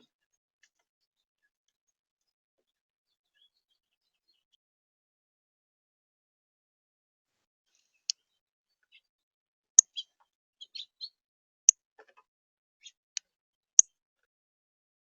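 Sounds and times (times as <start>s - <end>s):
soft bird chirps: 0.0s - 4.6s, 7.7s - 9.2s, 9.8s - 11.2s, 12.0s - 14.0s
bird chip calls: 9.8s - 11.2s.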